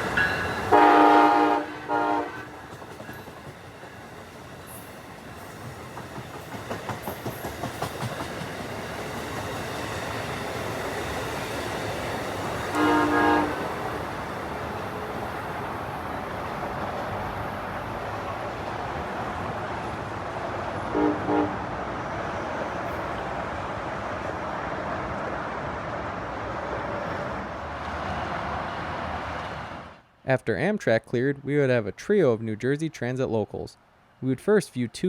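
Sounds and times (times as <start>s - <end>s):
electric train passing: 0.0s - 30.2s
train horn blasts: 0.7s - 2.7s, 12.7s - 13.9s, 20.9s - 21.6s.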